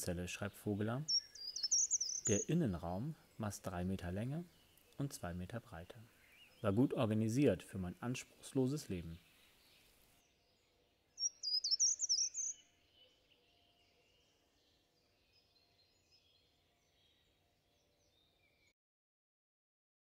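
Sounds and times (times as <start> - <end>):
loud bird chirping phrase: 0.0 - 7.2, 11.2 - 18.7
faint bird calls: 1.0 - 2.7, 11.2 - 14.4.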